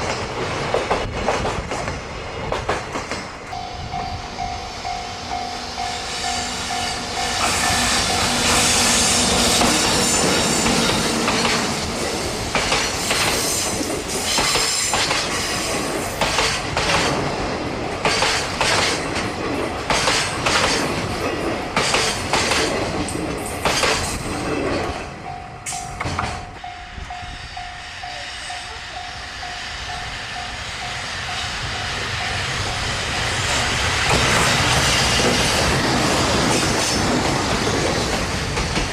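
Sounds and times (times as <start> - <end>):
train wheels clattering over rail joints: 0.0 - 3.6, 7.4 - 26.6, 33.4 - 38.9
steady high tone: 3.4 - 12.4, 25.1 - 33.5.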